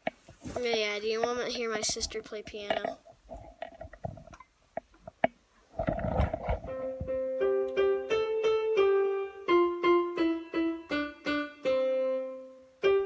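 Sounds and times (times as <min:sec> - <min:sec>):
piano melody: 0:06.7 - 0:13.0.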